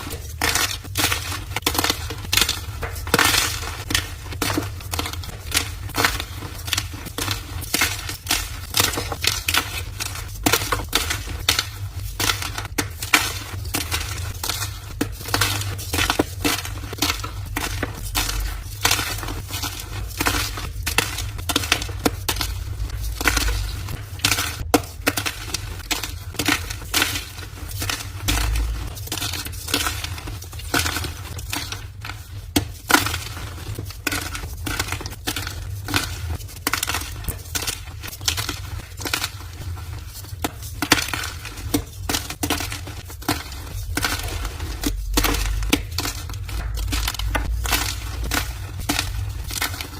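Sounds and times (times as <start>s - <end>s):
chalk crushed by hand: 0.0s - 49.9s.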